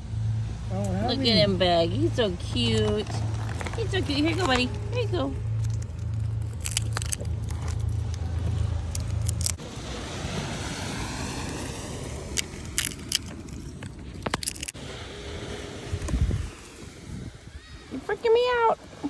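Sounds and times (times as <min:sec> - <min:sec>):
low engine hum: 0:00.0 - 0:19.0
sharp clicks and crackles: 0:02.5 - 0:09.6, 0:12.3 - 0:14.8.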